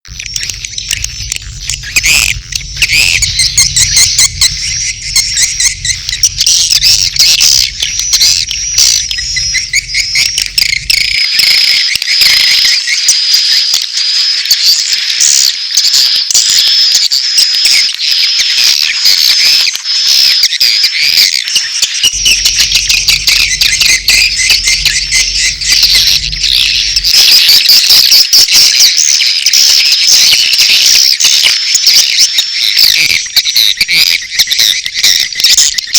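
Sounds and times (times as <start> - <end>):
low hum: 0.1 - 12.1, 22.1 - 28.0
swiftlets twittering: 0.1 - 13.0, 22.1 - 28.3, 32.7 - 35.9.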